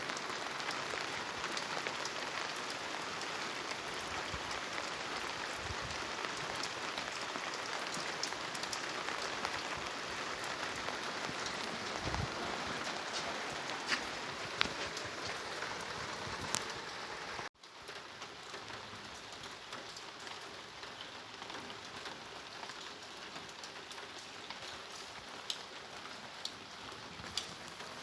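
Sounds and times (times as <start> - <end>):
heavy rain hissing: 0.1 - 17.5.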